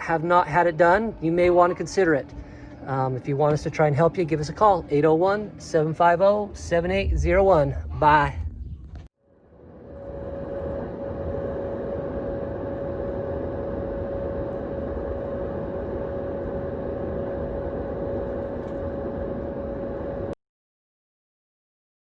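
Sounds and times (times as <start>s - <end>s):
motor whining: 0.0s - 9.1s
rushing noise: 4.4s - 9.1s.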